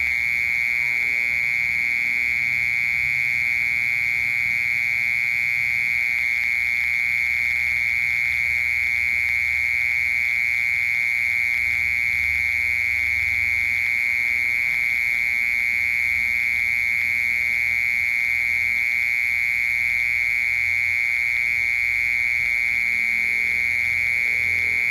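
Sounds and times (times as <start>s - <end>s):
cricket trilling: 0.0s - 24.9s.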